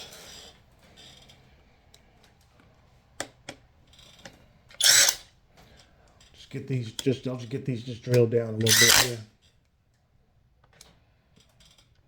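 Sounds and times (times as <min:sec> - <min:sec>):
metal tools clicking: 0:08.1 - 0:09.2.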